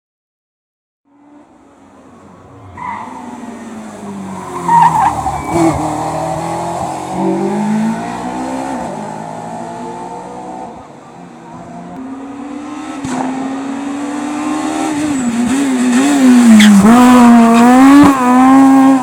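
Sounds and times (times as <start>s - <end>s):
race car engine revving: 1.3s - 19.0s
tyres squealing: 2.1s - 8.7s, 15.1s - 19.0s.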